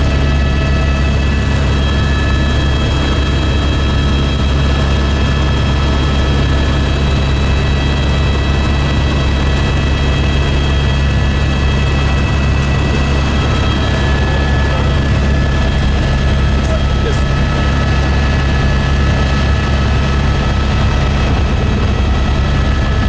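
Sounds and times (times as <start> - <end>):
helicopter engine and rotor drone: 0.0 - 23.0
high whining tones: 11.8 - 23.0.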